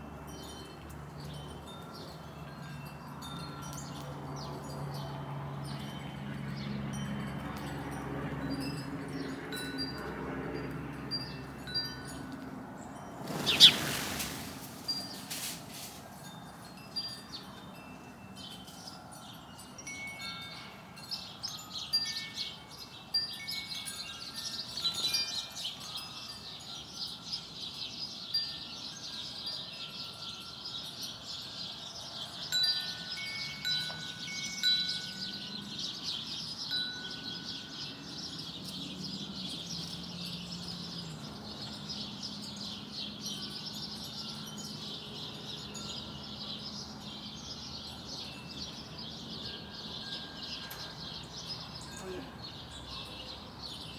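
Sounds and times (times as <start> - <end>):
small birds chirping: 12.8 - 53.9.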